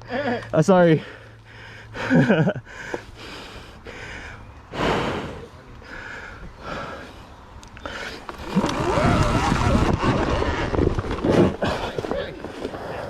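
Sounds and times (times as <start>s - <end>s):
man panting: 1.0s - 7.2s.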